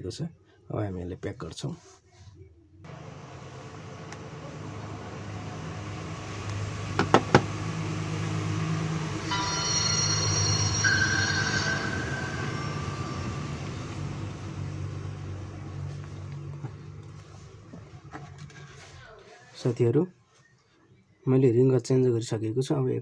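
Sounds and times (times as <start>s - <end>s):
high whining tones: 2.9s - 16.6s
passing vehicle rumble: 2.9s - 18.5s.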